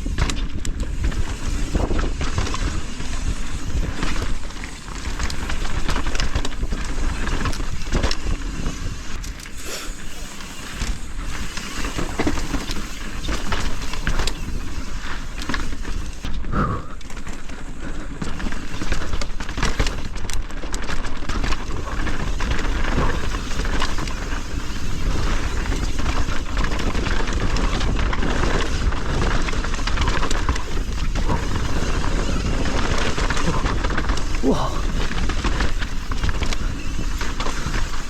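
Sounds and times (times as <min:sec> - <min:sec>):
tyres rushing on dirt: 0:00.0 - 0:16.4, 0:17.0 - 0:38.0
bike clicking and rattling: 0:00.0 - 0:38.0.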